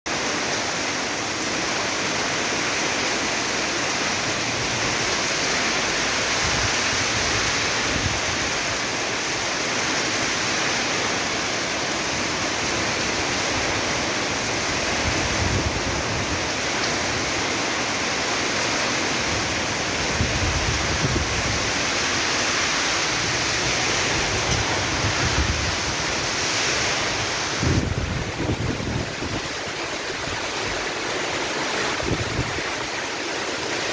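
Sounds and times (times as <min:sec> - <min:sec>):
heavy rain hissing: 0:00.2 - 0:33.9
wind buffeting microphone: 0:05.8 - 0:09.0, 0:13.4 - 0:17.5, 0:19.1 - 0:33.0.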